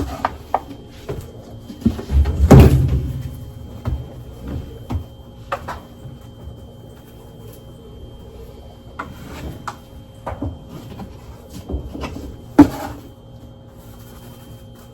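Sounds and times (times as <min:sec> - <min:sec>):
cupboard door banging shut: 0:02.4 - 0:03.4.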